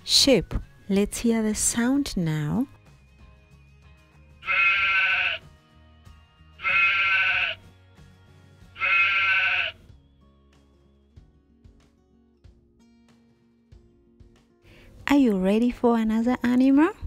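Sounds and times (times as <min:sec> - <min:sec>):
quiet background music: 0:00.0 - 0:17.0
sheep bleating: 0:04.4 - 0:05.4, 0:06.6 - 0:07.6, 0:08.8 - 0:09.8.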